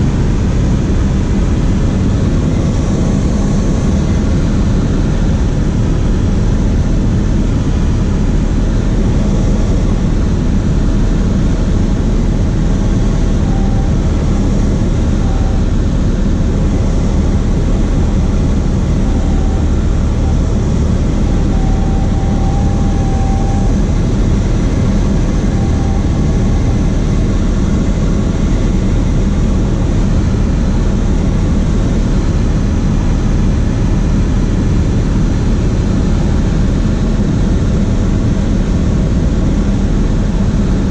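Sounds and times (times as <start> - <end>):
propeller plane engine running: 0.0 - 40.9
faint high tone: 13.1 - 15.9, 18.2 - 27.4.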